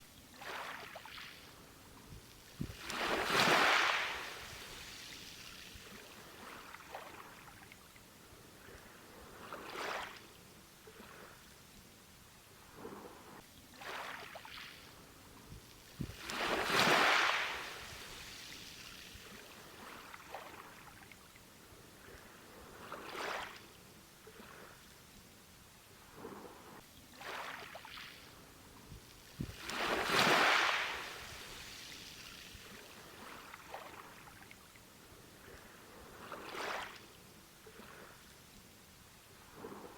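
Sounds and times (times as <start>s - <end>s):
ocean waves breaking on beach: 0.4s - 7.7s, 12.8s - 21.1s, 27.2s - 38.2s.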